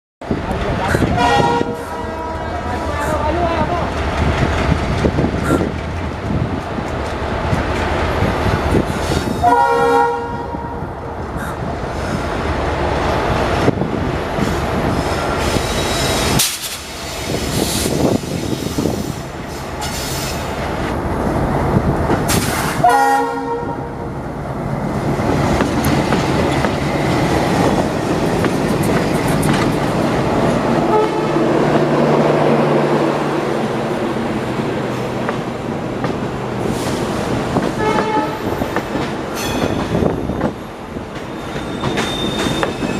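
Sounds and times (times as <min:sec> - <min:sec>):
train wheels rumbling on rails: 0:00.2 - 0:42.9
train horn blasts: 0:01.2 - 0:02.7, 0:09.4 - 0:10.9, 0:22.8 - 0:24.0, 0:30.8 - 0:31.5, 0:37.8 - 0:38.6.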